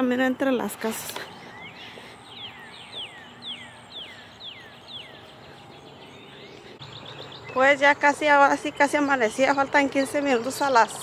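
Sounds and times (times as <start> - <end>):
songbird whistling: 1.4 - 7.6.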